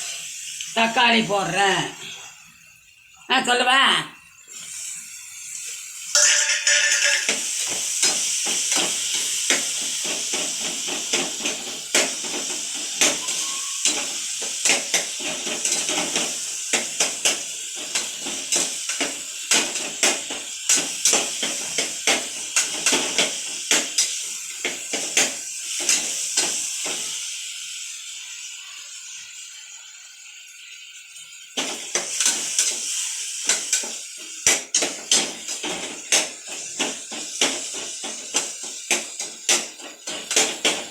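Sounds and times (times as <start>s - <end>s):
tomatoes sizzling in hot oil: 0.0s - 40.9s
metal ladle scraping a pan: 6.1s - 8.1s.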